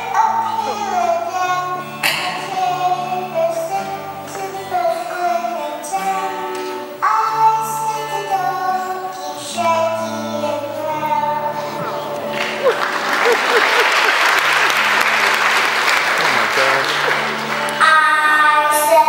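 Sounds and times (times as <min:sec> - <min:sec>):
children singing: 0:00.0 - 0:13.4.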